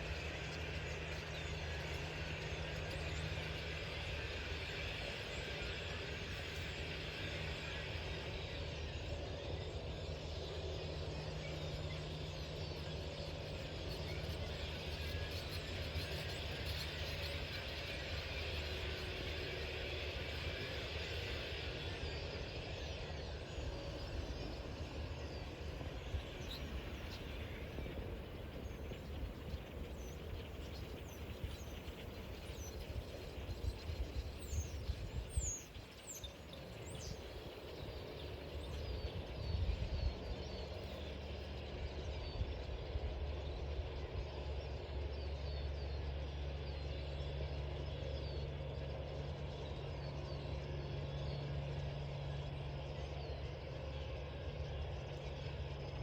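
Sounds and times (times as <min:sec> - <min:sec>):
small birds chirping: 0:13.1 - 0:41.7
low engine rumble: 0:21.3 - 0:41.8.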